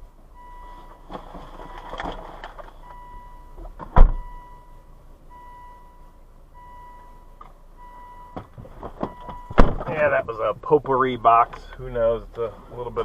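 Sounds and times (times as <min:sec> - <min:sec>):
loud thump: 0:03.8 - 0:04.3, 0:08.4 - 0:10.0.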